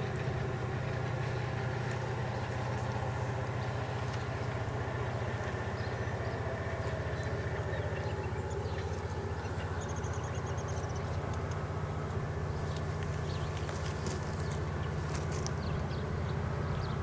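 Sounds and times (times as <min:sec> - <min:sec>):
locomotive engine throbbing: 0:00.0 - 0:17.0
faint high ticks: 0:10.7 - 0:11.6, 0:12.7 - 0:15.7.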